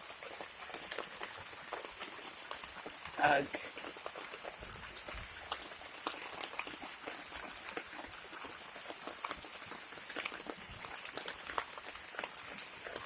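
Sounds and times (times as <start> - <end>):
raindrops striking close by: 0.0 - 13.0
steady rain falling: 0.0 - 13.0.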